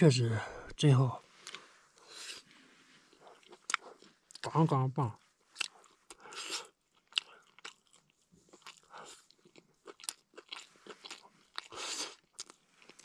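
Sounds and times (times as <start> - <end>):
person chewing and lip-smacking: 3.1 - 4.5, 5.6 - 13.0.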